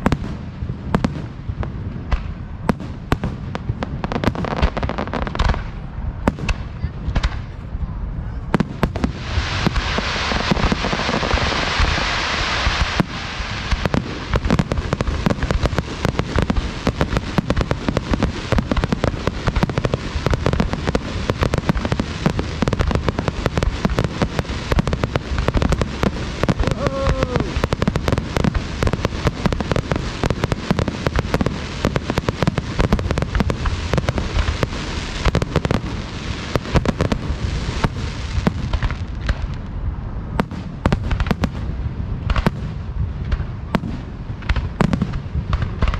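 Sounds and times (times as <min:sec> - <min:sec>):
fireworks bangs and crackles: 0:00.0 - 0:45.9
loud hissing crackle: 0:00.0 - 0:45.9.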